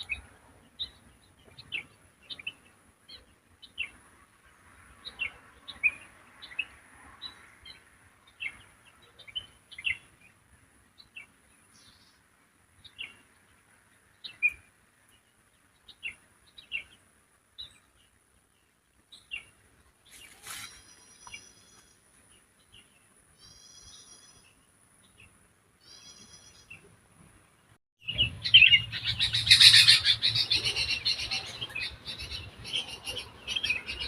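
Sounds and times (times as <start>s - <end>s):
songbirds chirping: 0.0s - 34.0s
harsh bird call: 28.1s - 34.0s.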